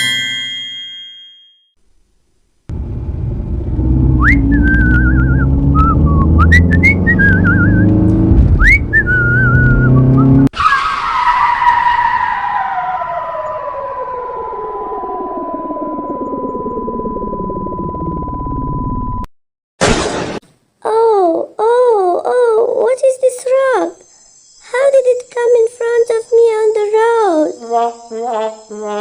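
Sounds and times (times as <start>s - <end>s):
car engine running: 2.7s - 10.5s
falling whistle-like sweep: 4.1s - 8.0s, 8.6s - 19.2s
whistled warbling tune: 4.1s - 10.8s
steady high tone: 14.6s - 19.2s.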